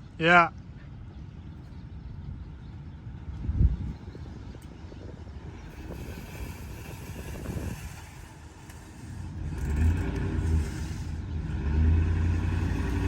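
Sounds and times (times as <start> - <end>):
suv engine rumbling under load: 4.4 - 13.0.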